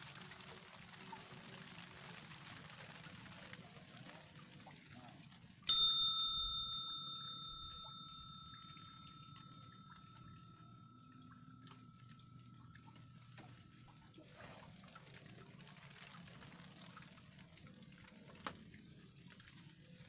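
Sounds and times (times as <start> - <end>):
small metal bell ringing: 5.7 - 13.4.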